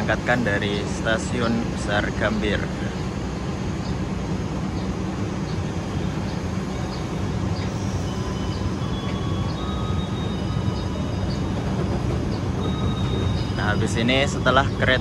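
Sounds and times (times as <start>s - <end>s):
diesel engine low rumble: 0.0s - 15.0s
faint high squealing: 5.4s - 15.0s.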